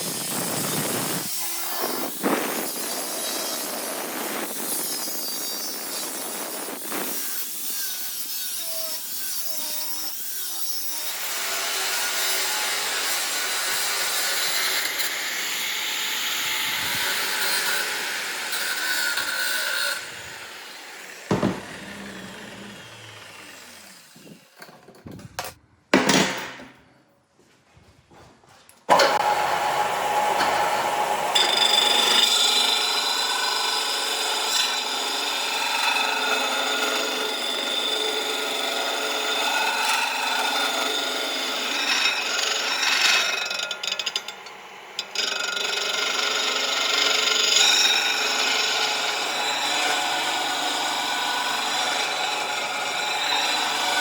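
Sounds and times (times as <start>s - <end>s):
power grinder grinding steel: 0.0s - 24.7s, 28.9s - 54.0s
sharp knocks: 21.3s - 22.5s.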